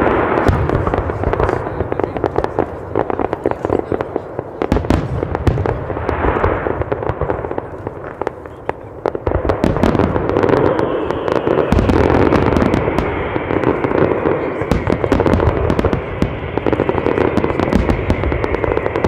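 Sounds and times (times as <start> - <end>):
fireworks crackling and banging: 0.0 - 19.0
falling high whistle: 10.6 - 13.4.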